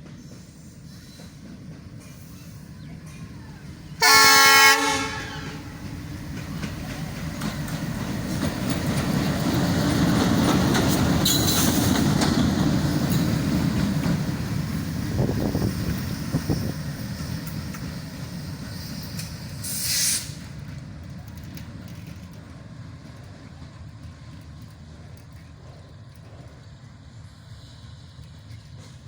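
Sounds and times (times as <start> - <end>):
train rumble and wheel clatter: 0.0 - 29.0
locomotive horn blast: 4.0 - 5.8.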